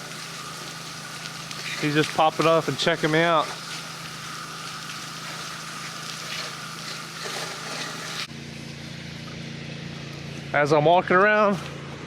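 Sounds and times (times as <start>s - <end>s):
water spray hissing: 0.0s - 8.3s
pressure washer engine running: 0.0s - 12.0s.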